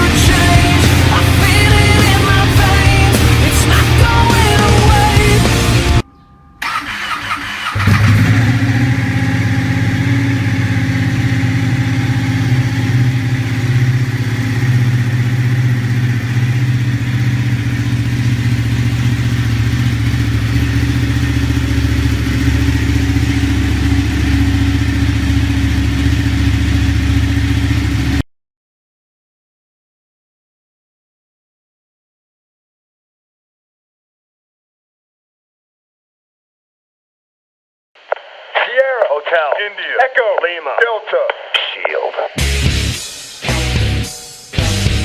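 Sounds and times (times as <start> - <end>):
motorcycle engine idling: 6.6 - 28.2.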